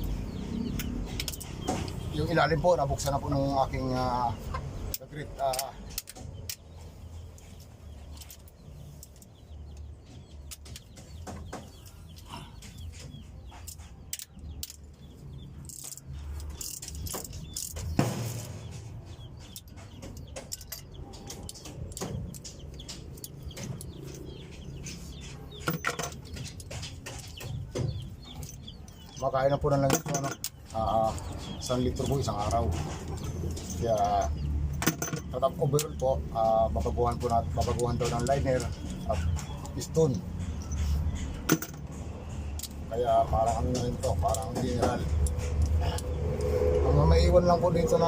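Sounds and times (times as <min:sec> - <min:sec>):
birds calling: 0:00.0 - 0:48.0
hand tools clinking on metal: 0:15.6 - 0:18.0, 0:18.7 - 0:46.6.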